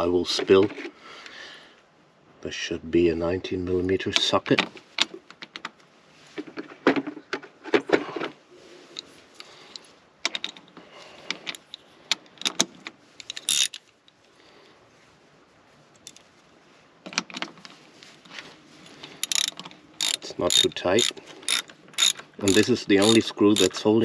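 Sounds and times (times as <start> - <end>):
metal hand tools clinking: 18.9 - 24.0.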